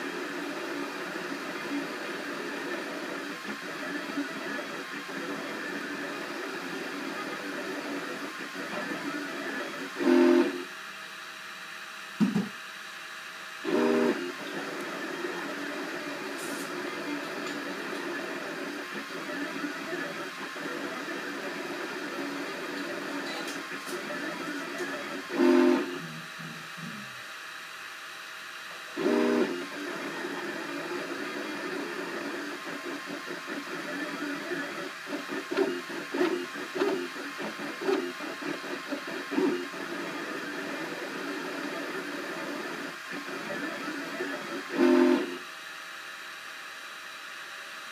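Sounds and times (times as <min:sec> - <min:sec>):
printer fan hiss: 0:00.0 - 0:11.1, 0:13.1 - 0:47.4
stepper motors whining: 0:23.2 - 0:26.8, 0:29.0 - 0:45.4.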